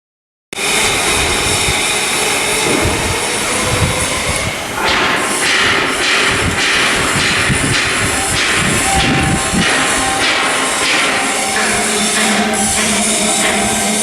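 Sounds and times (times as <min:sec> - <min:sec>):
machinery noise with hiss: 0:00.6 - 0:14.0.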